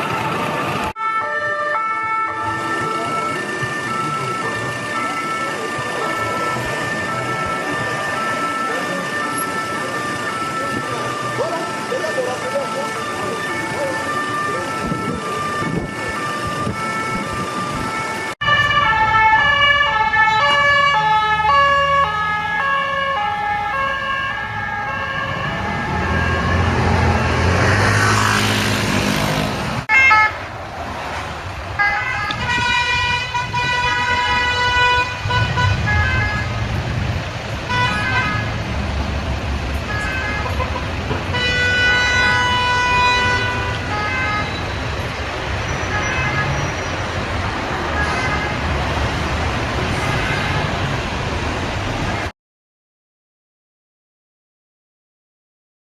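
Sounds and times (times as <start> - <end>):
two-tone police siren: 0.0 - 28.5, 29.9 - 30.5, 31.8 - 36.8, 39.7 - 49.2
car passing close: 25.2 - 31.8.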